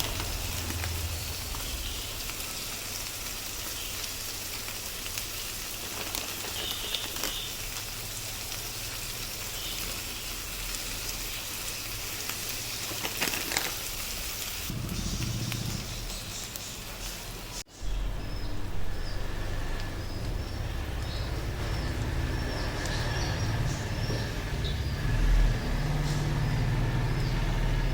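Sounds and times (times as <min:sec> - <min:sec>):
meat sizzling in a pan: 0:00.0 - 0:17.7.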